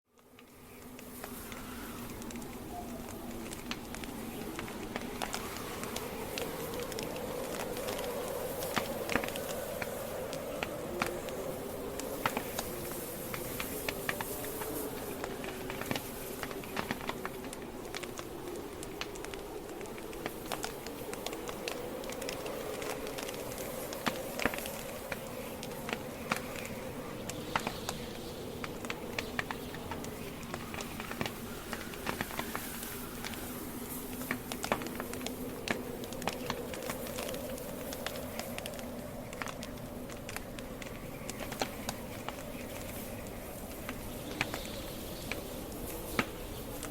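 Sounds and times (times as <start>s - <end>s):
campfire crackling and popping: 0.1s - 46.9s
low hiss of flames: 0.1s - 46.9s.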